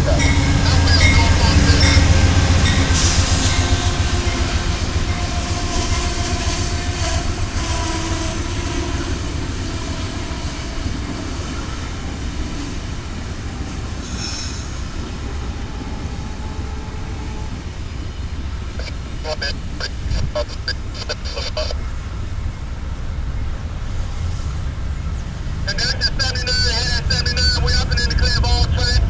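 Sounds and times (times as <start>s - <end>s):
high wheel squeal: 0.0s - 18.6s
train rumbling on track: 0.0s - 29.0s.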